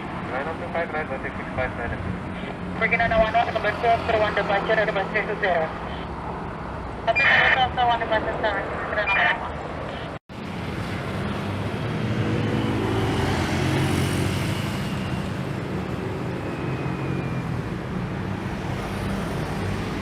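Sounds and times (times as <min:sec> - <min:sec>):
jet airliner engine rumble: 0:00.0 - 0:10.6.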